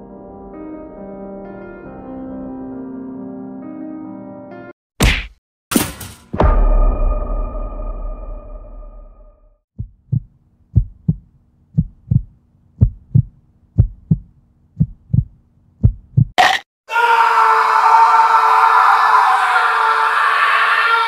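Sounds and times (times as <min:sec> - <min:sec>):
music: 0:00.0 - 0:04.8
ringing heavy hit: 0:06.4 - 0:09.4
heartbeat double thump: 0:09.8 - 0:16.4.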